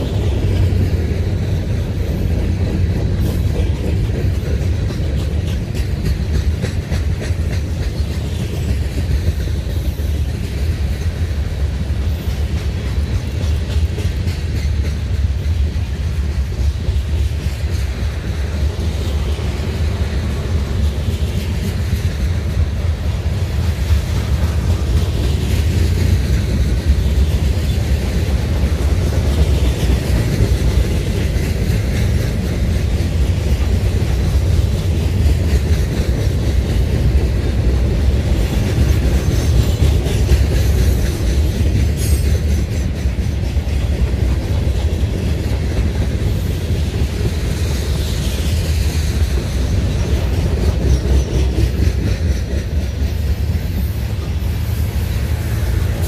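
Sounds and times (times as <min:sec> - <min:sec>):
wheels clicking over rail joints: 0:00.0 - 0:56.0
freight cars rumbling past: 0:49.3 - 0:56.0.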